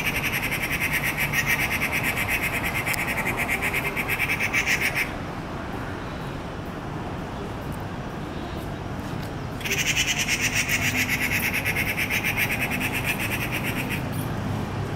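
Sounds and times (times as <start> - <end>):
bird harsh rattling call: 0.0 - 5.1, 9.6 - 14.3.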